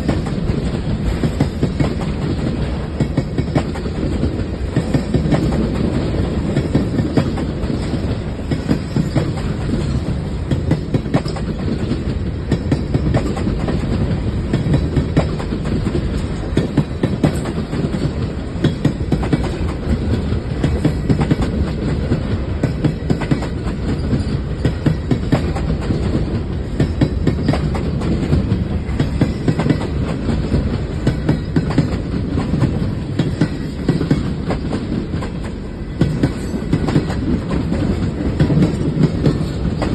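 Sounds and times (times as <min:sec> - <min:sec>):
freight train rumble: 0:00.0 - 0:39.9.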